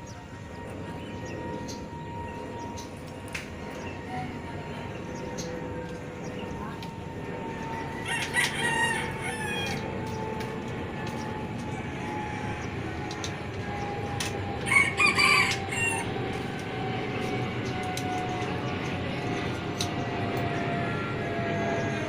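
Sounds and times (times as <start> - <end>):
steady background hum: 0.0 - 22.0
rooster crowing: 7.9 - 9.9, 11.7 - 13.2, 14.6 - 16.2.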